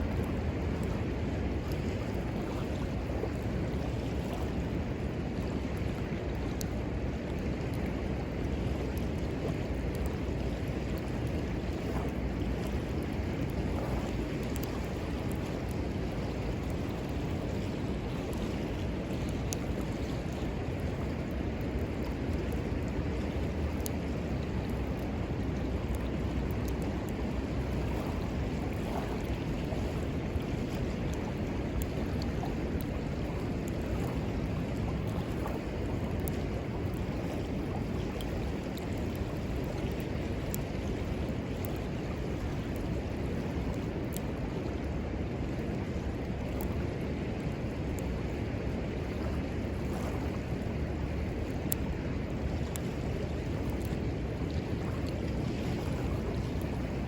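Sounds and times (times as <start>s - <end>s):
river water rushing: 0.0s - 57.0s
wood fire crackling: 4.6s - 46.8s.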